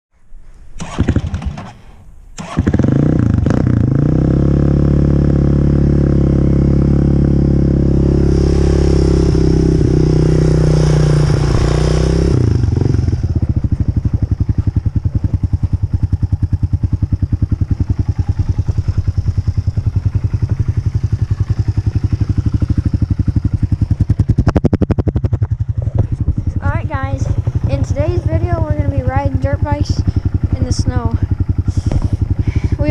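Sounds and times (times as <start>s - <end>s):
dirt bike engine starting and idling: 0.7s - 32.9s
engine knocks: 10.8s - 32.9s.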